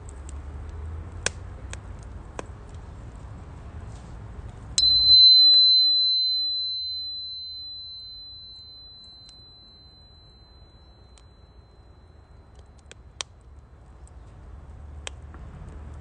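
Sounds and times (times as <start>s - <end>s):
metal chime ringing: 4.8s - 12.6s.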